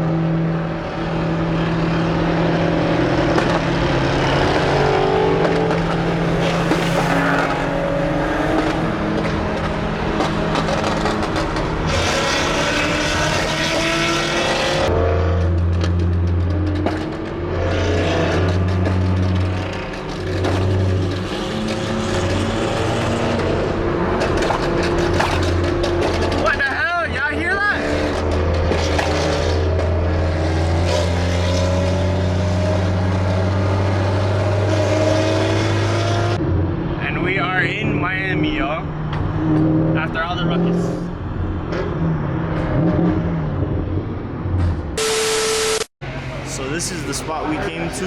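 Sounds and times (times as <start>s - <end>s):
car engines revving: 0.0s - 48.0s.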